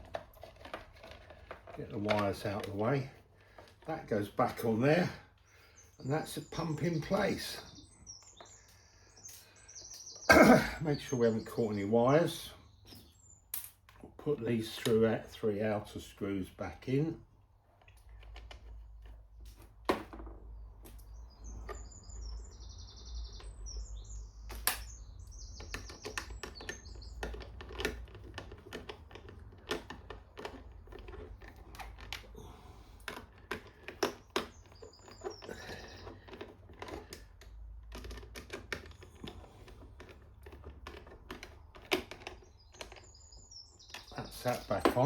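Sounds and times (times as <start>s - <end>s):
clicks and taps of screws and tools: 0.0s - 3.9s, 17.8s - 21.9s, 24.5s - 32.4s, 33.0s - 43.2s
birds chirping: 0.0s - 45.0s.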